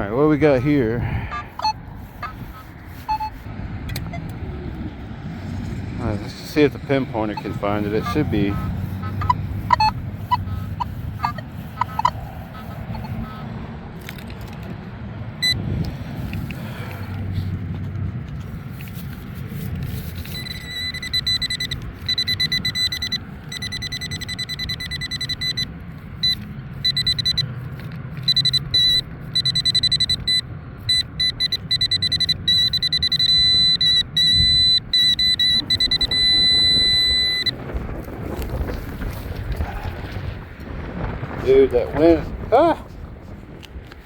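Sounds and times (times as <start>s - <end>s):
wind rumble on microphone: 0.0s - 24.2s, 33.8s - 44.0s
pinpointer beeping: 1.2s - 2.4s, 3.0s - 4.3s, 6.8s - 13.4s, 15.4s - 15.6s, 20.2s - 27.5s, 28.2s - 37.6s.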